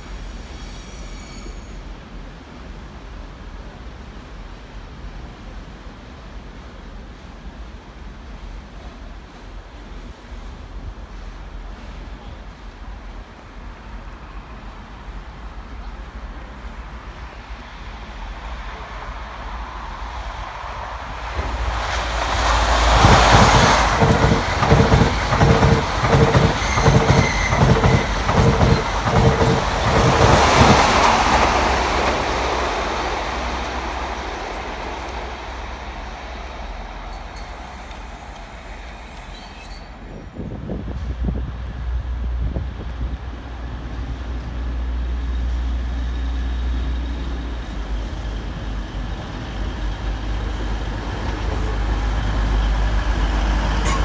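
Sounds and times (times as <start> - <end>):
second train approaching: 0.0 - 54.0
steady train whine: 0.0 - 54.0
train wheels clattering on rail: 21.1 - 40.2, 46.4 - 54.0.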